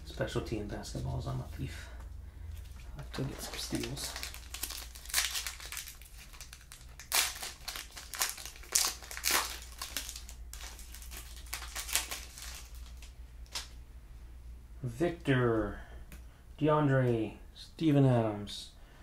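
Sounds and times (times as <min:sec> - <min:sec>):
plastic wrapper crinkling: 0:02.6 - 0:13.8.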